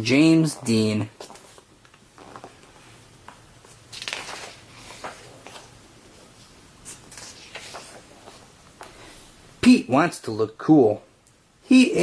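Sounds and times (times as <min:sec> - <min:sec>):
paper rustling: 0:01.2 - 0:09.2.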